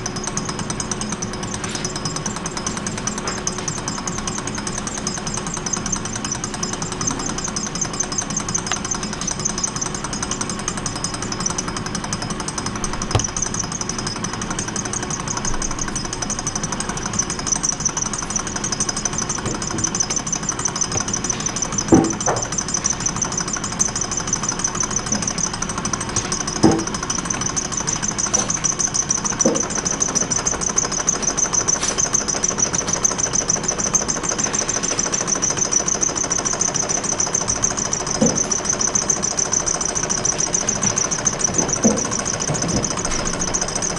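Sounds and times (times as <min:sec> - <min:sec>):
small engine mechanical rattle: 0:00.0 - 0:43.9
loud knocks: 0:13.1 - 0:13.4, 0:21.9 - 0:22.5, 0:26.2 - 0:27.0.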